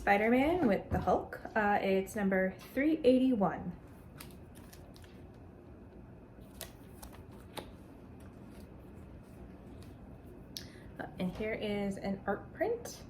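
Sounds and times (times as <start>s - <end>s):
paper shuffling: 3.9s - 5.4s, 6.4s - 10.1s.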